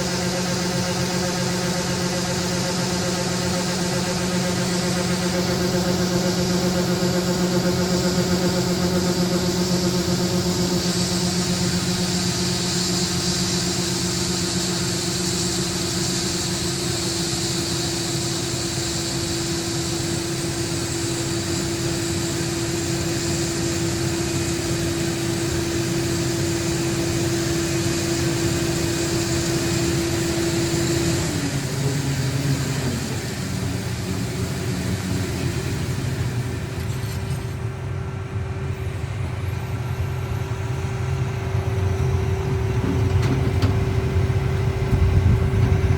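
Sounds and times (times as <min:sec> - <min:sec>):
combine harvester humming: 0:00.0 - 0:45.9.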